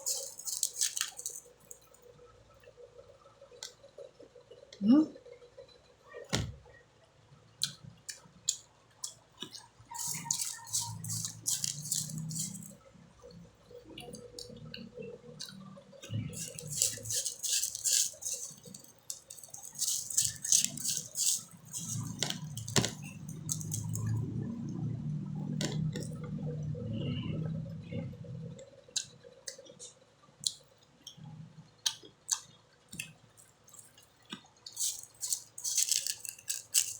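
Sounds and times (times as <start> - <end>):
crisp crunching and wet chewing: 0.0 - 2.1, 7.6 - 24.9, 25.5 - 26.2, 30.4 - 31.2, 31.8 - 36.9.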